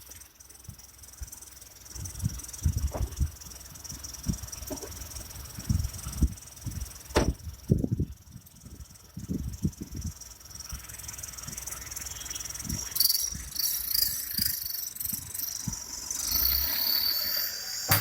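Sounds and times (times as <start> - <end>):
turbo whistle whistling: 12.7 - 18.0.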